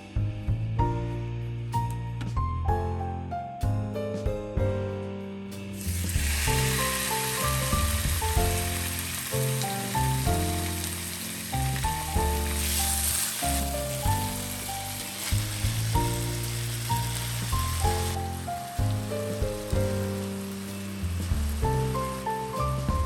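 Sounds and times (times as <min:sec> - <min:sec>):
melodic background music: 0:00.0 - 0:23.0
steady hiss: 0:05.8 - 0:23.0.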